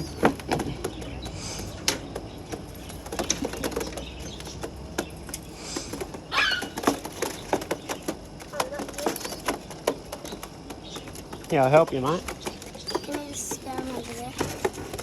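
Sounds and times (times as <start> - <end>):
clicks and knocks of feet and wood: 0.0 - 15.0.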